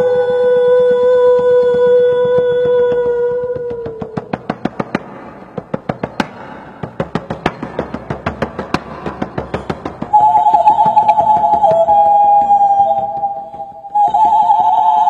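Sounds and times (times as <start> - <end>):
sharp knocks or clicks: 1.2 - 14.9
horn-like tone: 10.1 - 15.0.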